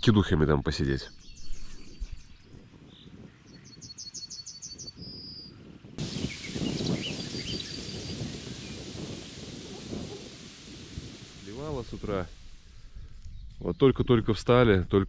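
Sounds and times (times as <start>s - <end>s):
bird singing: 0.9s - 10.2s
loud rushing noise: 6.0s - 12.8s.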